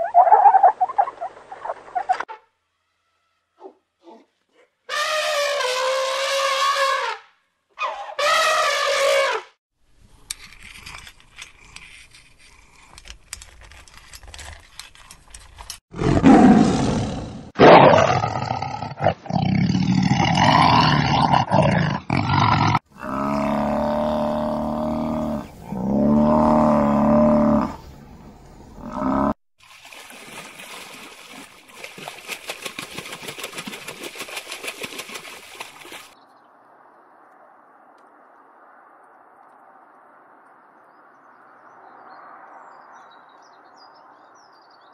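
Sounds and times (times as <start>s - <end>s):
lioness roaring and growling: 15.9s - 27.8s.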